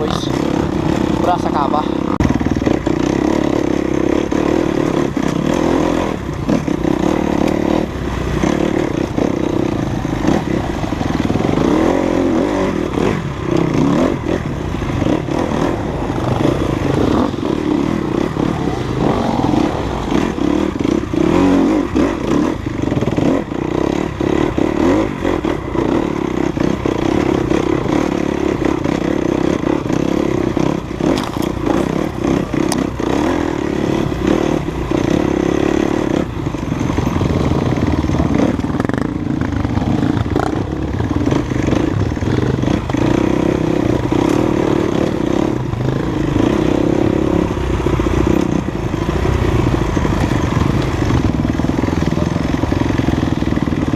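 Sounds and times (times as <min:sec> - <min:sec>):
dirt bike engine under throttle: 0:00.0 - 0:53.9
bike knocks and rattles: 0:31.0 - 0:32.9.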